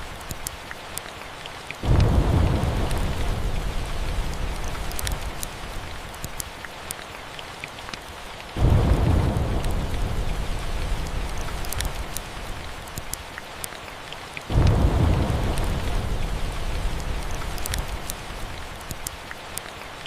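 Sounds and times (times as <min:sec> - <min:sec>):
steady rain: 0:00.0 - 0:20.0
thunder rumbling: 0:01.8 - 0:06.1, 0:08.6 - 0:12.9, 0:14.5 - 0:18.8.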